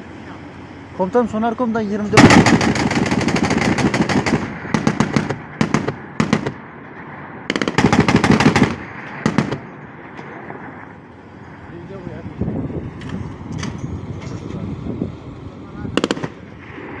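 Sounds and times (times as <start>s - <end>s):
anti-aircraft gun firing bursts: 2.2s - 6.6s, 7.5s - 9.7s, 16.0s - 17.0s.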